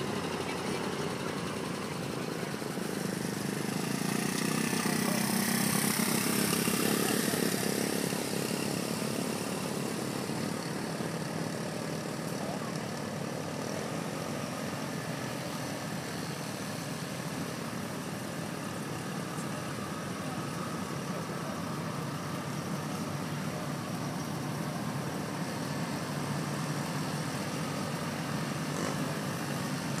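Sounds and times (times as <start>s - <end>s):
old cars driving slowly past: 0.0s - 30.0s.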